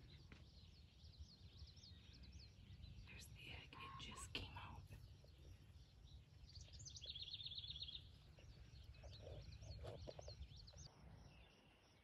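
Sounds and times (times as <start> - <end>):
birdsong trills and chirps: 0.0 - 12.0.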